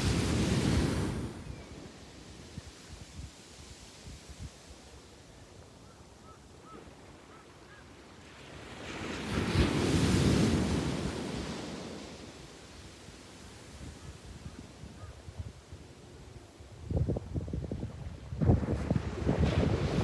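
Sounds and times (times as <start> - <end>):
wave breaking and washing in: 0.0 - 2.3, 18.2 - 20.0
sea waves on sandy beach: 0.0 - 2.5, 8.2 - 13.9, 18.4 - 20.0.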